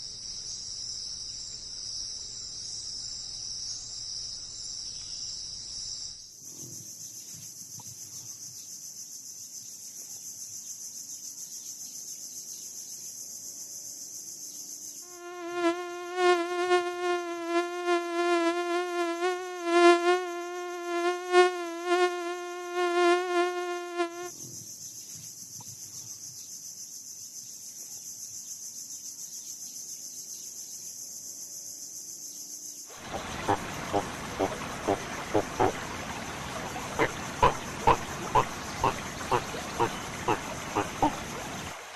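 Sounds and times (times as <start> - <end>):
high insect trill: 0.0 - 41.9
flying insect buzzing: 14.8 - 24.4, 32.9 - 41.9.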